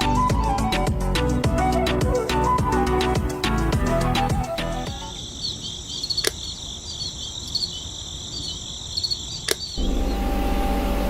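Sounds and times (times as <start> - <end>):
crickets chirping: 3.0 - 11.0
sharp clicks: 6.1 - 6.5, 9.4 - 9.8.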